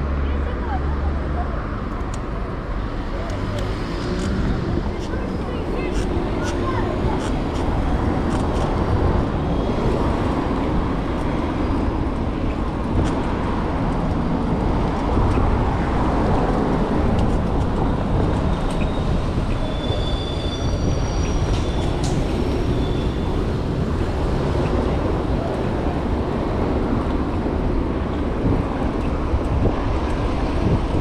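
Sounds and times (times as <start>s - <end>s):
vehicle and road rumble: 0.0s - 31.0s
high-pitched squeals: 18.8s - 23.4s.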